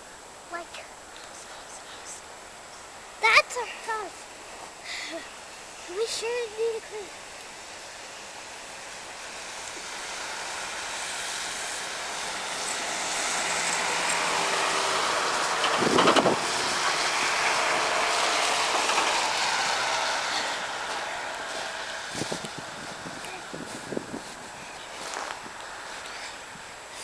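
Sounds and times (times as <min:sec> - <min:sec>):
passing vehicle rushing: 0:09.4 - 0:26.9.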